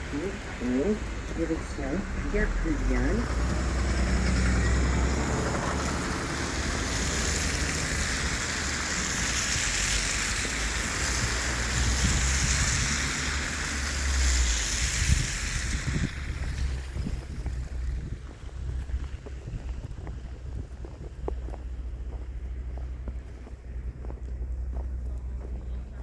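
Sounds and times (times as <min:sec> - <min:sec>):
bus engine rumble: 0:00.0 - 0:26.0
continuous rushing hiss: 0:06.2 - 0:18.6.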